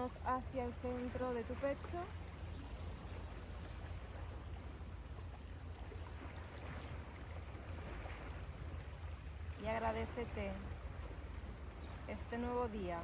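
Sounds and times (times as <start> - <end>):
sea surf washing on shore: 0.0 - 5.0.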